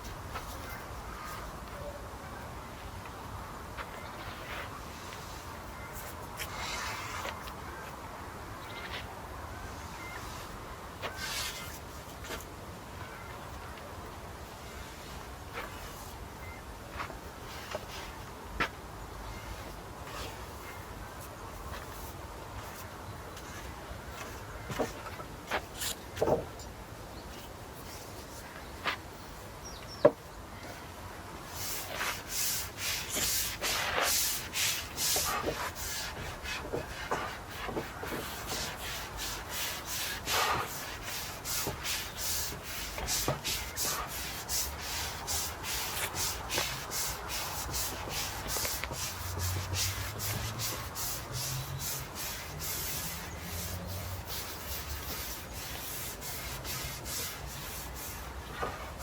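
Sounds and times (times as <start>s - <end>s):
brush strokes on wood: 9.7s - 12.5s, 31.4s - 59.0s.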